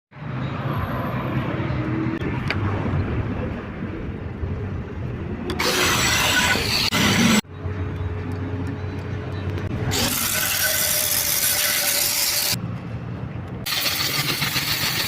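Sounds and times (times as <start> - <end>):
harsh stone cutting noise: 5.5 - 7.4, 9.8 - 12.6, 13.6 - 15.0.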